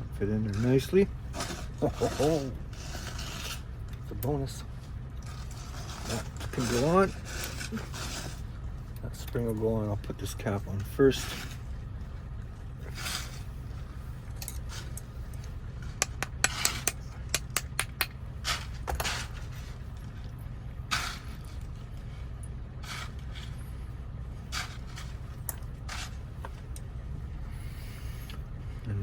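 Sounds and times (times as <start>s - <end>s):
steady low hum: 0.0s - 29.0s
small metal clicks and scrapes: 5.2s - 8.4s, 12.8s - 23.8s, 24.4s - 26.9s.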